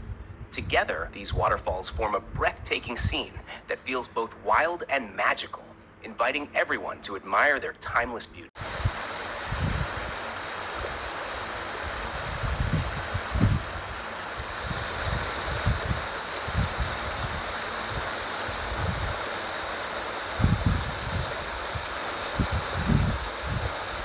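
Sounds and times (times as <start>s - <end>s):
wind buffeting microphone: 0.0s - 3.6s, 8.6s - 19.3s, 20.3s - 24.0s.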